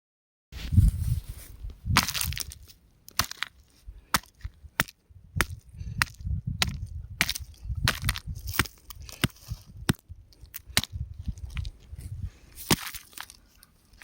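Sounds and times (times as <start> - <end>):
rock cracking and snapping: 1.9 - 12.0, 12.6 - 14.0
dull low thuds: 4.4 - 12.4.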